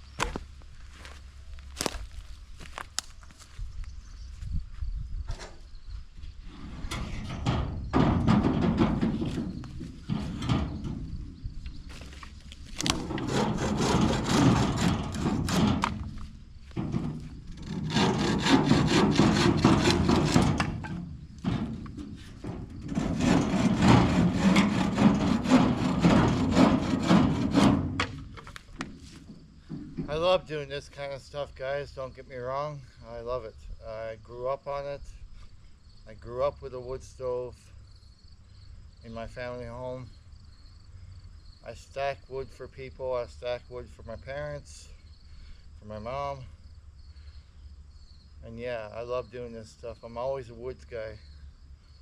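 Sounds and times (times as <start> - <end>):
hand saw cutting wood: 12.8 - 16.2, 17.5 - 21.0, 22.8 - 28.2.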